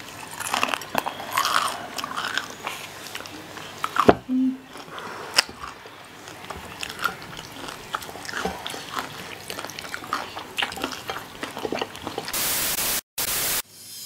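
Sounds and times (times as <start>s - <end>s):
biting and chewing food: 0.0s - 12.4s
static hiss: 12.4s - 14.0s.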